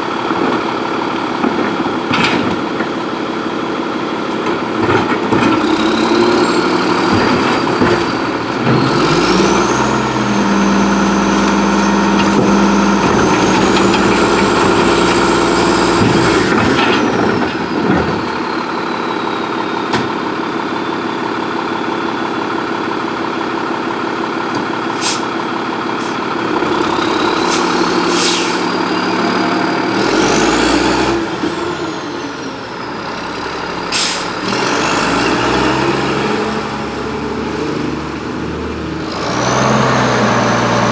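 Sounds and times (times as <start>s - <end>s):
truck engine revving: 5.0s - 18.5s, 25.9s - 40.9s
hydraulic pump whine: 5.6s - 18.7s.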